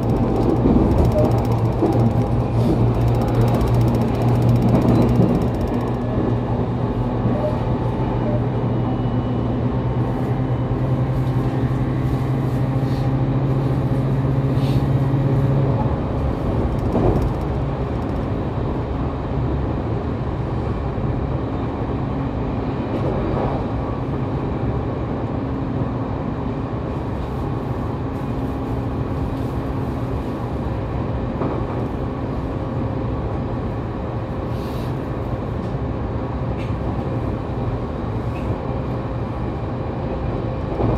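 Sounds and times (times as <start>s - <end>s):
low motor hum: 0.0s - 7.3s
train wheels rumbling on rail: 0.0s - 40.9s.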